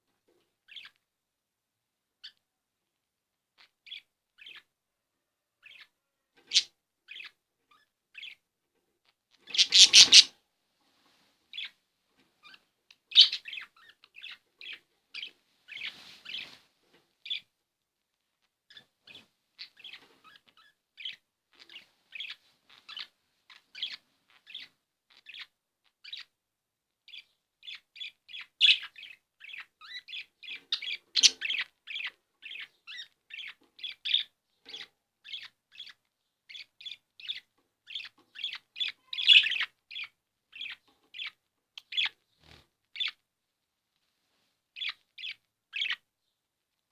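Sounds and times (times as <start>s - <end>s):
budgerigars chirping: 0.7s - 1.0s, 3.6s - 4.7s, 5.6s - 8.4s, 9.4s - 10.3s, 12.4s - 16.6s, 18.7s - 26.3s, 27.1s - 43.2s, 44.8s - 46.0s
budgerigar squawks: 9.5s - 10.3s.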